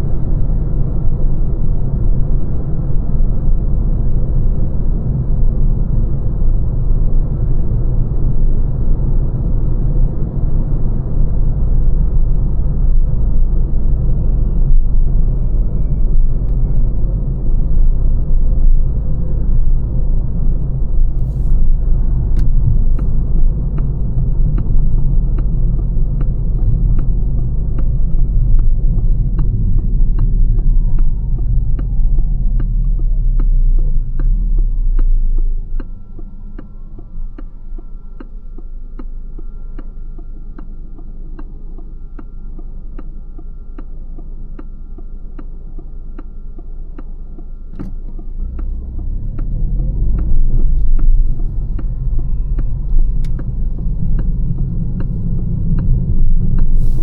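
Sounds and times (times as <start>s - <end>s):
road and tyre rumble: 0.0s - 57.0s
faint steady tone: 11.4s - 57.0s
turn indicator ticking: 16.3s - 57.0s.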